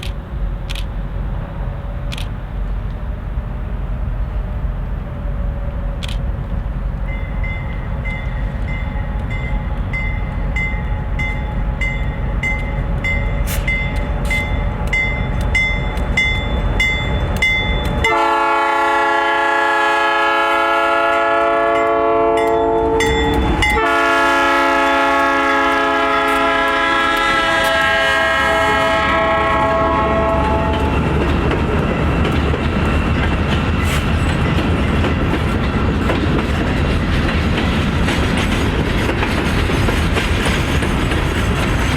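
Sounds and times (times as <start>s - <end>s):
freight train rumbling past: 0.0s - 41.9s
crossing bell ringing: 7.0s - 18.3s, 21.7s - 24.3s
train air horn blasts: 18.0s - 31.0s.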